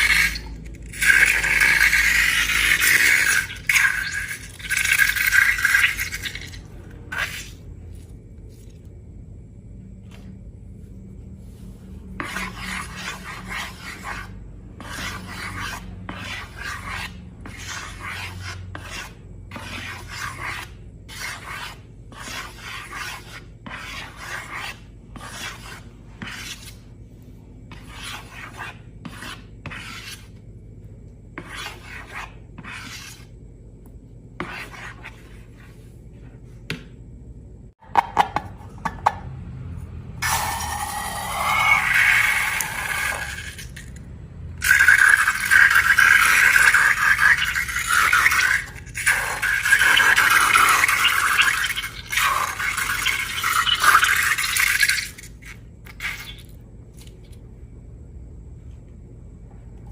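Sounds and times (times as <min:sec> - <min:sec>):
slime rubbing and scraping: 0:31.4 - 0:33.4, 0:44.6 - 0:57.2.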